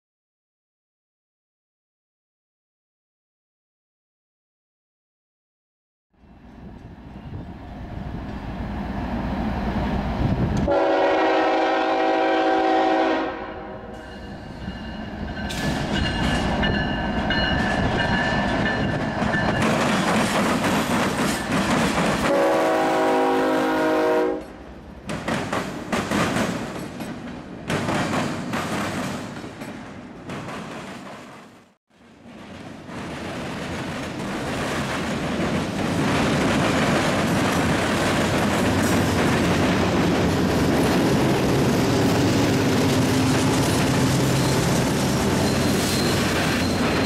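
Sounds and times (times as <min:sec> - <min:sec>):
train horn blasts: 0:10.7 - 0:14.2, 0:22.3 - 0:24.6.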